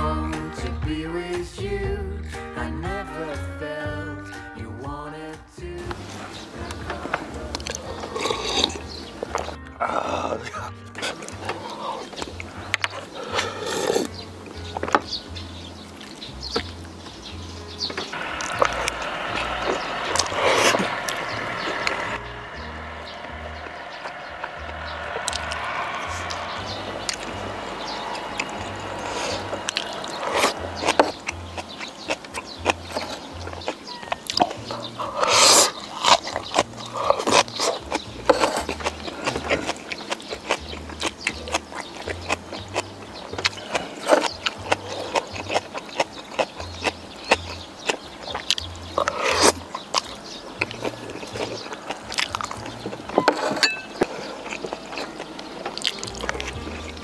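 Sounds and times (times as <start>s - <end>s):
soft background music with bassline: 0.0s - 57.0s
loud eating bursts: 5.9s - 57.0s
person chewing with mouth clicks: 7.5s - 15.0s, 18.1s - 22.2s, 25.2s - 57.0s.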